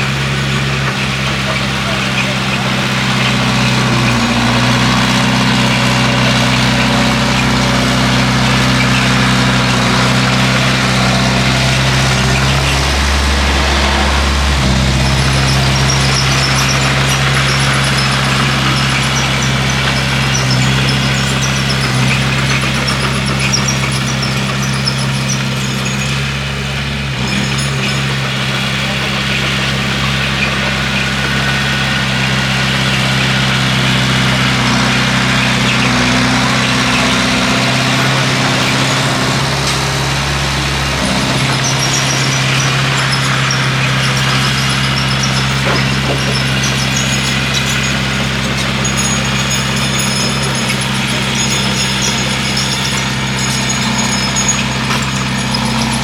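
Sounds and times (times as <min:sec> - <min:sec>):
bulldozer diesel engine running: 0:00.0 - 0:56.0
faint high squeaks: 0:41.0 - 0:56.0.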